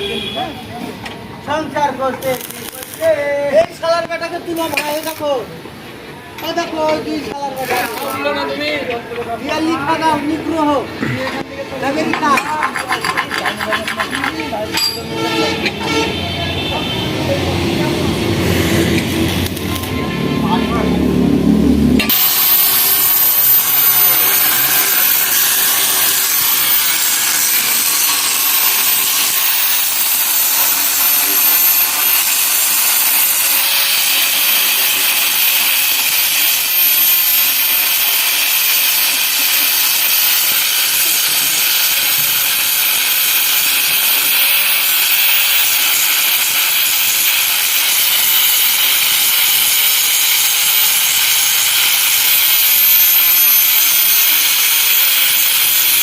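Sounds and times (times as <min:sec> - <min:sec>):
arc welding hissing crackle: 0:00.0 - 0:10.9, 0:17.6 - 0:56.0.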